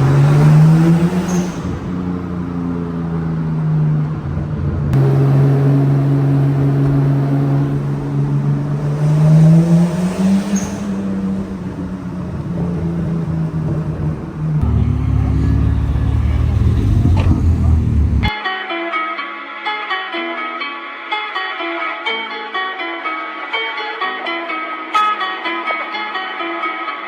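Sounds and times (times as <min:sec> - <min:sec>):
car engine accelerating: 0:00.0 - 0:18.3.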